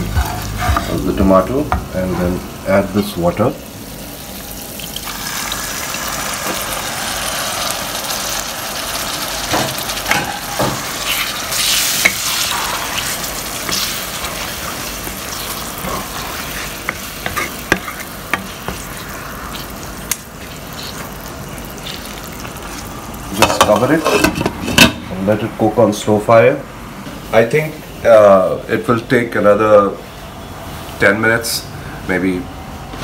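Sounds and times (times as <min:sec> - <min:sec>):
spatula scraping a pan: 0:00.0 - 0:01.2, 0:10.1 - 0:24.8
mince sizzling: 0:00.0 - 0:24.4.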